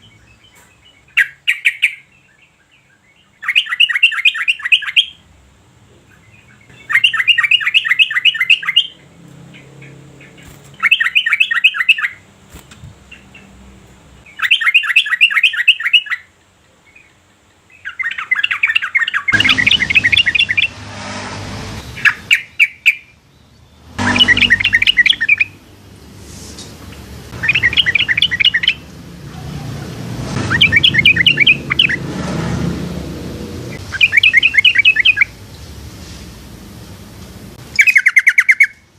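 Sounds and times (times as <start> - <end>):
bulbul singing: 0.0 - 5.2, 6.0 - 20.9, 21.8 - 25.9, 26.9 - 29.1, 30.3 - 32.1, 33.7 - 35.7, 37.6 - 38.9
rushing background noise: 5.2 - 14.4, 19.3 - 22.6, 23.8 - 37.8.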